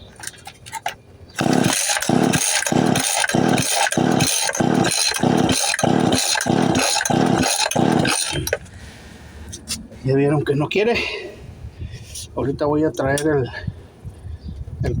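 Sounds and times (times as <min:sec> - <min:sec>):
chainsaw engine cranking: 0:00.1 - 0:08.7.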